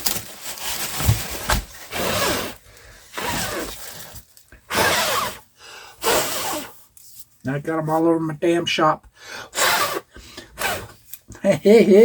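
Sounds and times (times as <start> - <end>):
styrofoam crunching and crackling: 0.0 - 4.5.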